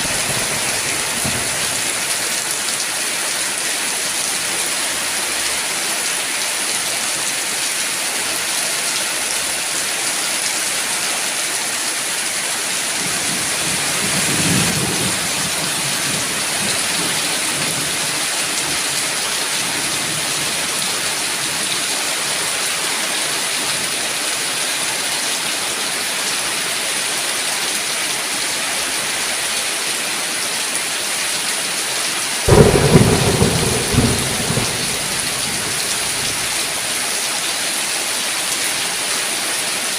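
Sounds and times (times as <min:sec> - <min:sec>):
heavy rain: 0:00.0 - 0:39.9
loud thunderclap: 0:32.5 - 0:36.6
distant thunder rolling: 0:32.5 - 0:36.7.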